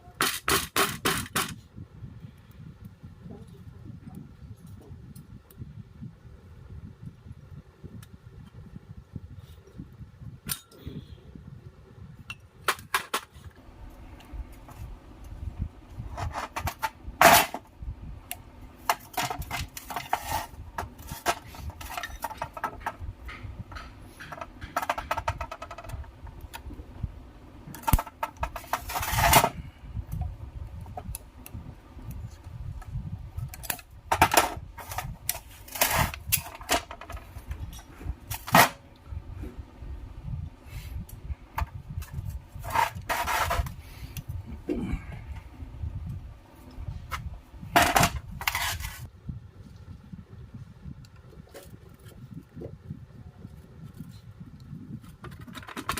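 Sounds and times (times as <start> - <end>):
rasping metal scrapes: 42.6 - 43.8.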